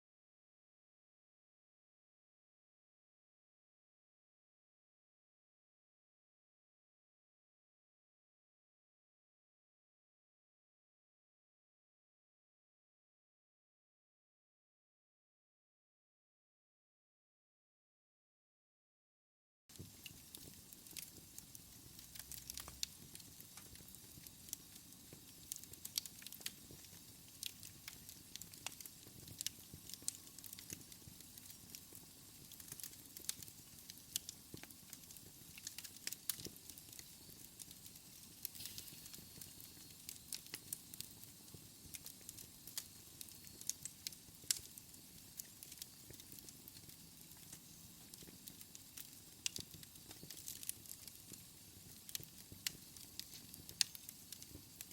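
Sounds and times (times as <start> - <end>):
wood fire crackling and popping: 19.7 - 54.9.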